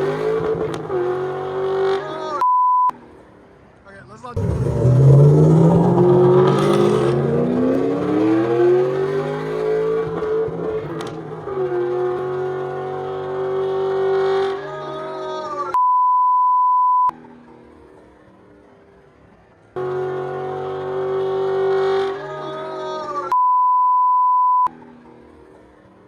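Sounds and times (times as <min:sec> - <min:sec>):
car engine accelerating: 0:00.0 - 0:02.3, 0:04.4 - 0:15.6, 0:19.8 - 0:23.1
censor bleep tone: 0:02.4 - 0:02.9, 0:15.8 - 0:17.1, 0:23.3 - 0:24.7.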